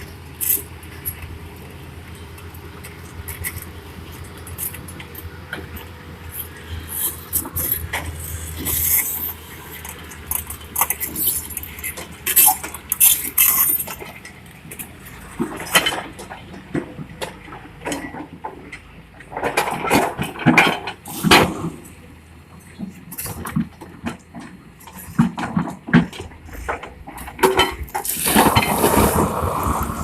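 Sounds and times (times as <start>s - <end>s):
metallic clattering and scraping: 2.8s - 18.4s, 22.8s - 30.0s.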